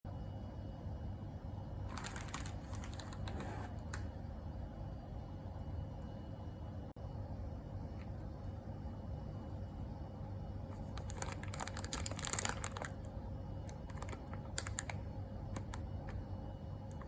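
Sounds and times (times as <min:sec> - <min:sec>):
low steady hum: 0:00.1 - 0:17.0
packaging crinkling and clicking: 0:01.9 - 0:04.1, 0:10.8 - 0:16.2.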